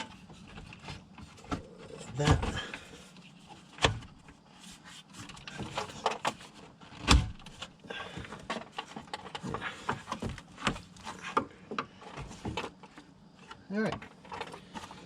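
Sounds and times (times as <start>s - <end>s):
plastic parts clicking and knocking: 5.2s - 15.0s.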